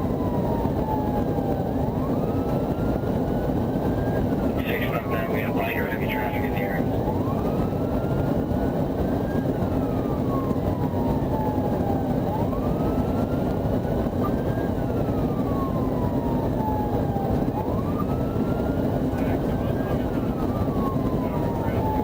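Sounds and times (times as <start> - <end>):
police siren wailing: 0.0 - 22.0
vehicle engine and road noise: 0.0 - 22.0.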